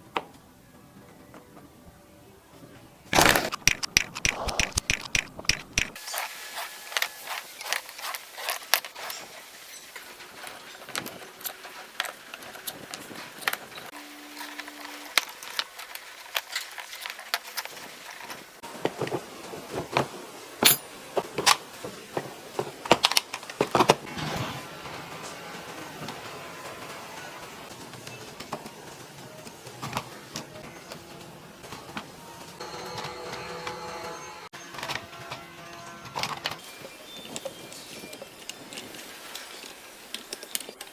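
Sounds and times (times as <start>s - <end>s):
small hard parts clicking: 3.1s - 6.0s.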